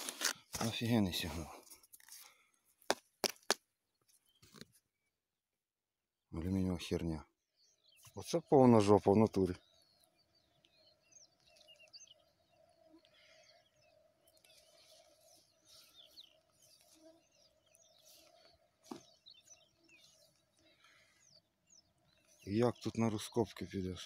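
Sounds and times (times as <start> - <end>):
birds chirping: 3.8 - 5.2, 6.2 - 24.0.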